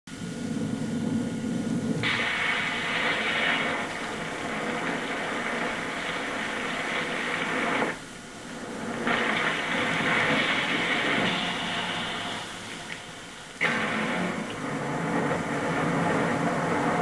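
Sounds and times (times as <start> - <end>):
heavy rain pouring: 0.3 - 17.0.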